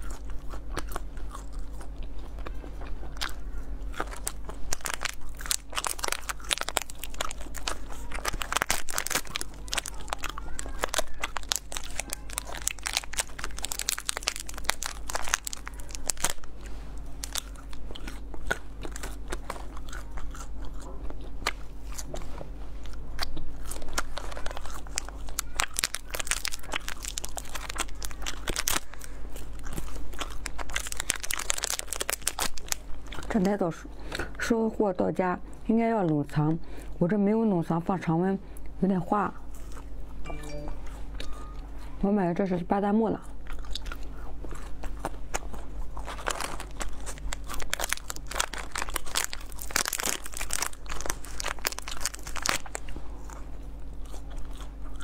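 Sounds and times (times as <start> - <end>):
crunching and chewing candy: 0.0 - 37.0, 38.5 - 55.0
steady low hum: 0.0 - 55.0
plastic wrappers crinkling: 4.0 - 20.3, 23.6 - 33.6, 44.8 - 53.4.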